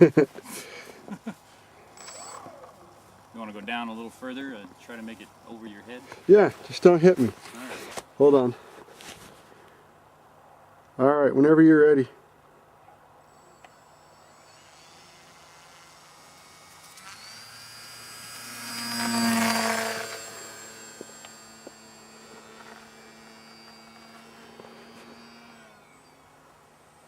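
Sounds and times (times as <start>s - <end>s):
model plane motor whine: 2.0s - 3.0s, 13.2s - 27.0s.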